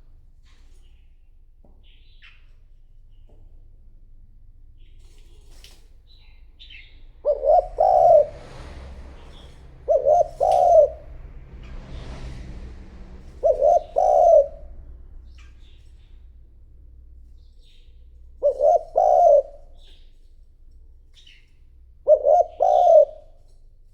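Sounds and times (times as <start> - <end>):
dove cooing: 6.8 - 15.8, 18.4 - 20.0, 22.0 - 23.5.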